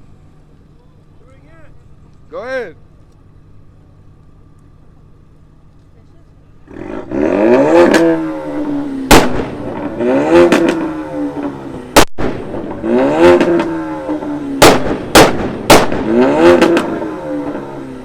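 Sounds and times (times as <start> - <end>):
car engine revving: 6.6 - 18.0
exhaust backfire bangs: 6.6 - 18.0.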